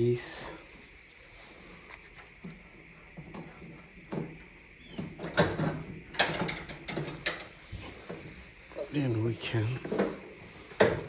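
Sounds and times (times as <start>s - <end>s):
clicks and knocks of dryer parts: 3.2s - 8.3s, 9.8s - 11.0s.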